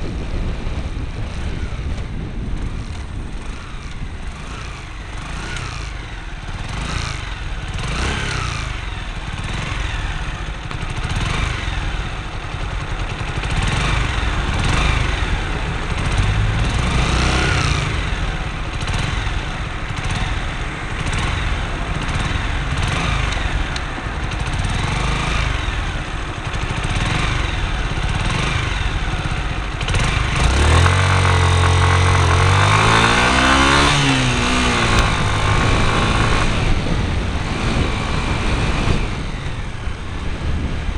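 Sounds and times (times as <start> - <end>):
wind rush: 0.0 - 5.4, 13.4 - 19.5, 30.0 - 40.9
motorcycle engine running: 0.0 - 40.9.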